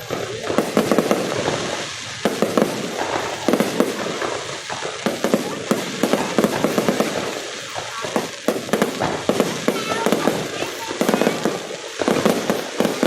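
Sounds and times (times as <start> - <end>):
constant hiss: 0.0 - 13.0
fireworks bangs and crackling: 0.0 - 13.0.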